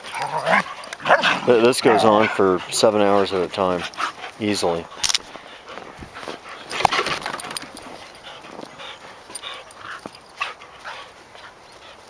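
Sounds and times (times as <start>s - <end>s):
dog vocal sounds: 0.0s - 5.1s
dogs scuffling: 0.0s - 12.0s.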